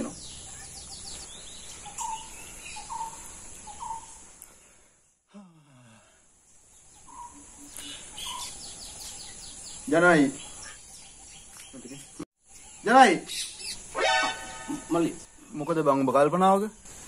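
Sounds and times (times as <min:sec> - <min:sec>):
steady high hiss: 0:06.2 - 0:17.0.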